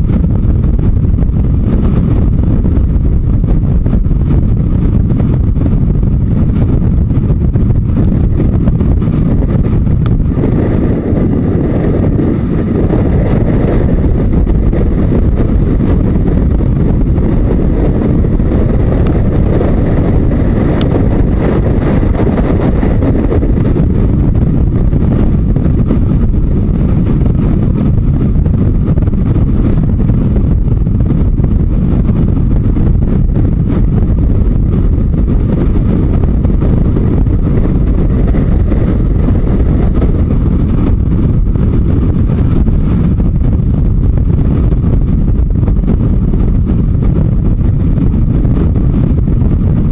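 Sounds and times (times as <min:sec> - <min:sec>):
motorcycle running: 0:00.0 - 0:49.9
road noise: 0:00.0 - 0:49.9
wind rush over microphone: 0:00.0 - 0:49.9.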